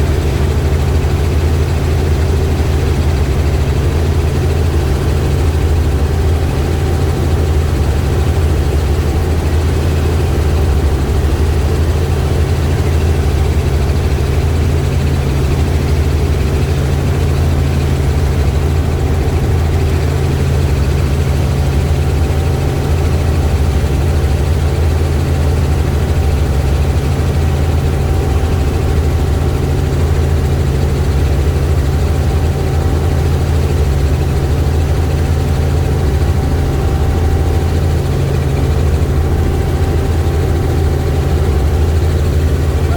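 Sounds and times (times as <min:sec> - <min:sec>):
helicopter engine and rotor drone: 0:00.0 - 0:42.9
faint whine: 0:35.6 - 0:42.9.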